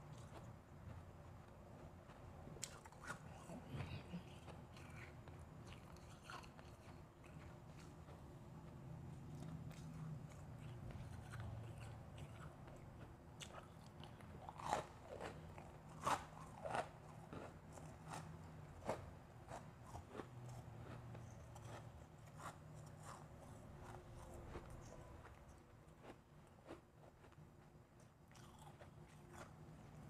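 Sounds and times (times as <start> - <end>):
ice being chewed crunching: 2.6 - 8.3, 9.2 - 18.3, 19.5 - 25.4, 28.0 - 29.6.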